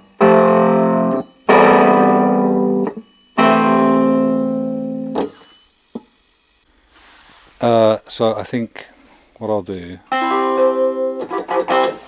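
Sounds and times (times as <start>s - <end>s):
distorted keyboard chords: 0.0s - 5.4s.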